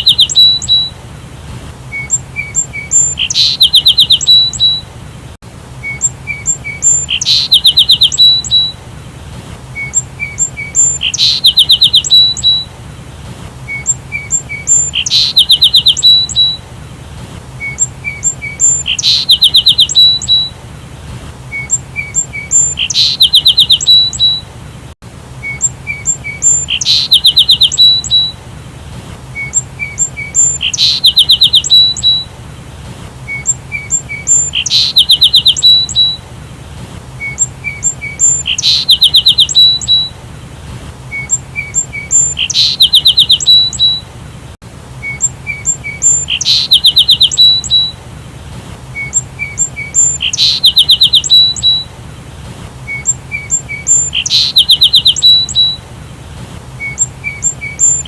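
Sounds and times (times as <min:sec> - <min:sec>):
sparrow chirping and trilling: 0:00.0 - 0:00.9, 0:01.9 - 0:04.8, 0:05.8 - 0:08.8, 0:09.8 - 0:12.7, 0:13.7 - 0:16.6, 0:17.6 - 0:20.5, 0:21.5 - 0:24.4, 0:25.4 - 0:28.4, 0:29.4 - 0:32.3, 0:33.3 - 0:36.2, 0:37.2 - 0:40.1, 0:41.1 - 0:44.0, 0:45.0 - 0:48.0, 0:49.0 - 0:51.9, 0:52.9 - 0:55.8, 0:56.8 - 0:58.0.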